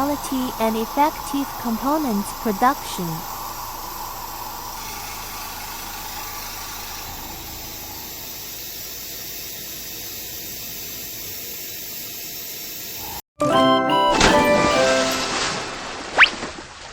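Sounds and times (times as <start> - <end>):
steady hissing noise: 0.0 - 13.2
music with held notes: 13.4 - 16.0.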